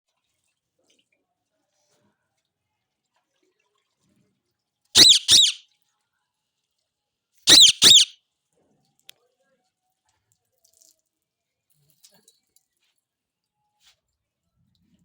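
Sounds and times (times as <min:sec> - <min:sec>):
parakeet giving shrill calls: 0:05.0 - 0:05.6, 0:07.5 - 0:08.2.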